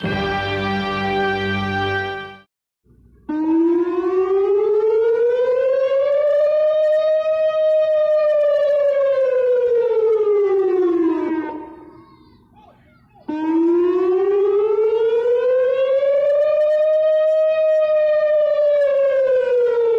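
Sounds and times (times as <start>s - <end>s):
warning siren wailing: 3.2s - 12.5s, 13.2s - 19.9s.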